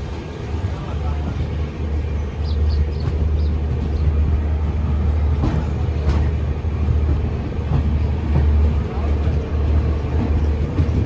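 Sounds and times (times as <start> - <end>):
train engine rumble: 0.0 - 11.0.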